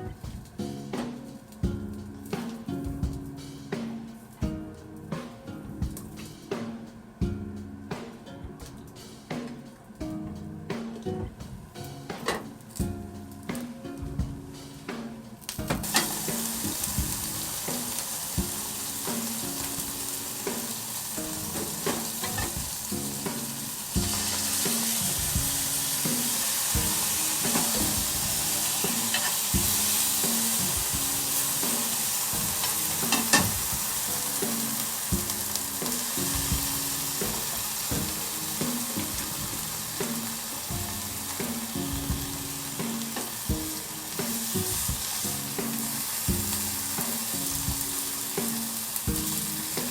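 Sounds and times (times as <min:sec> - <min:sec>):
food sizzling in oil: 0:15.5 - 0:49.9
utensil tapping a pan: 0:15.5 - 0:49.9.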